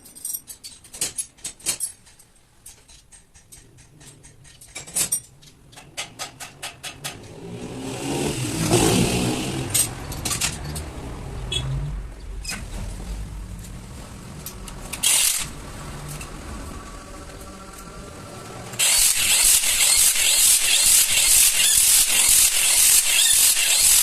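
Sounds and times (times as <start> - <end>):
tractor diesel engine starting: 6.9 - 22.5.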